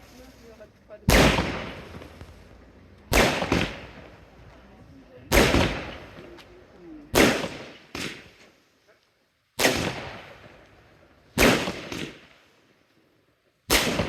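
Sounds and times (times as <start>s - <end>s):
fireworks bangs echoing: 0.0s - 4.5s, 5.2s - 8.6s, 9.6s - 12.4s, 13.7s - 14.0s.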